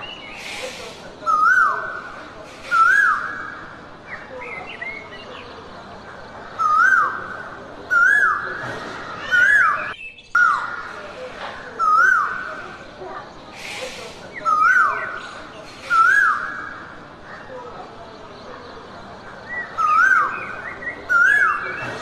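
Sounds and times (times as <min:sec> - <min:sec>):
jungle ambience hiss: 0:00.0 - 0:03.5, 0:11.8 - 0:16.6.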